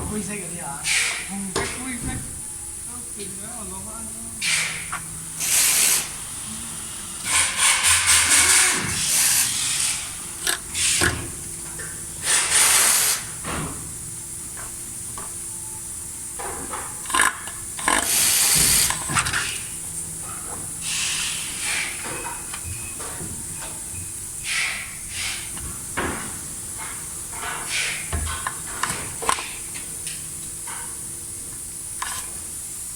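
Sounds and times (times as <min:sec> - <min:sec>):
hissing bursts: 0:00.8 - 0:02.0, 0:04.3 - 0:11.3, 0:12.2 - 0:13.4, 0:17.8 - 0:19.8, 0:20.8 - 0:22.1, 0:24.4 - 0:25.6.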